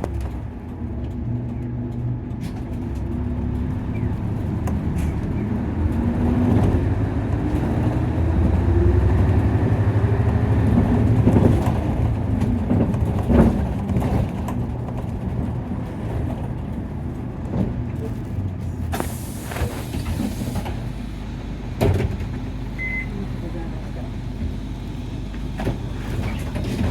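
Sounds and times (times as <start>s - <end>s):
bus diesel engine pulling: 0.0s - 26.9s
compressed air hiss: 18.9s - 20.7s.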